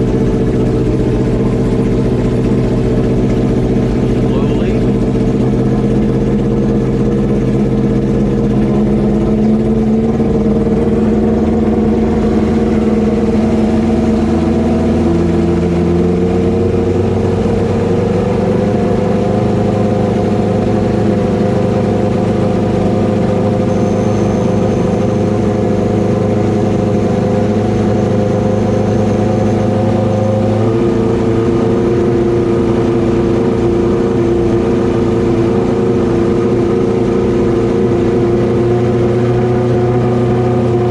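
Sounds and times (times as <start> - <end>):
motorcycle engine idling: 0.0 - 28.0.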